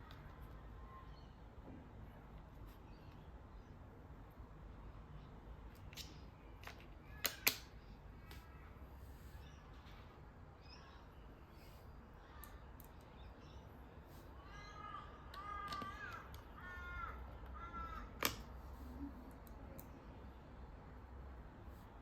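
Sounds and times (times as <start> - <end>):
crow cawing: 14.5 - 18.2.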